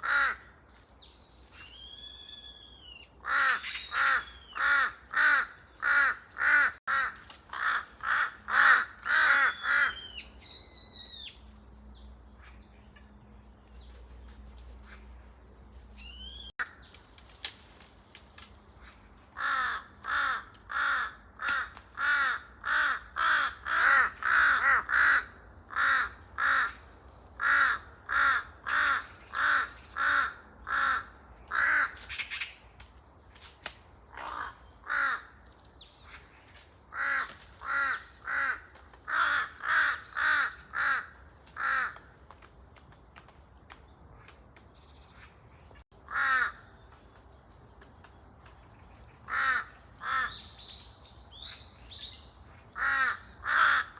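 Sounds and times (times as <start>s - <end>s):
crows cawing: 0.0s - 0.5s, 3.2s - 10.2s, 19.3s - 26.8s, 27.4s - 32.4s, 34.1s - 35.4s, 36.9s - 42.3s, 46.0s - 46.8s, 49.2s - 50.6s, 52.7s - 53.9s.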